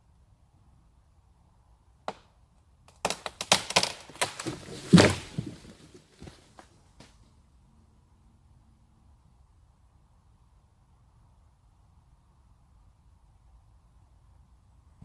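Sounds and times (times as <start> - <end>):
wooden branch cracking: 2.9 - 6.4.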